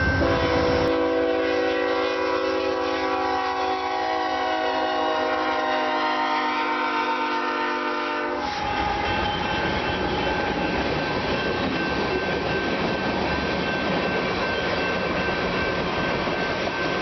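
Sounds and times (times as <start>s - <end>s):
freight train wheels rattling: 8.4s - 17.0s.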